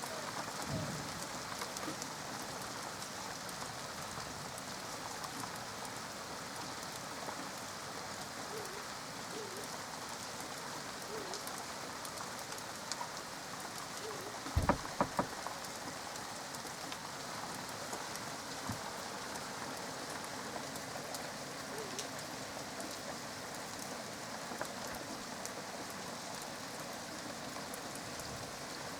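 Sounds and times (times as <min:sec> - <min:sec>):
steady rain falling: 0:00.0 - 0:28.9
sharp knocks: 0:14.6 - 0:15.4.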